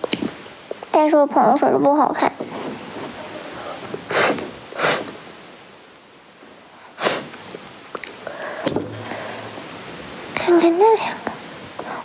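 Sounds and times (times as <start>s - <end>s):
breath noises close to microphone: 2.4s - 5.2s, 8.2s - 9.7s.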